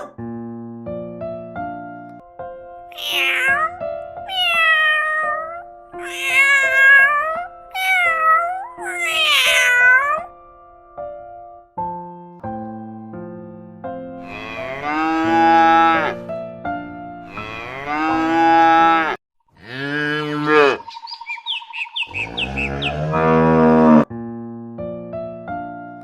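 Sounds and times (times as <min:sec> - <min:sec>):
simple piano tune: 0:00.0 - 0:14.8, 0:15.6 - 0:17.3, 0:24.0 - 0:26.0
cow mooing: 0:14.2 - 0:16.3, 0:17.2 - 0:20.8, 0:22.1 - 0:24.1.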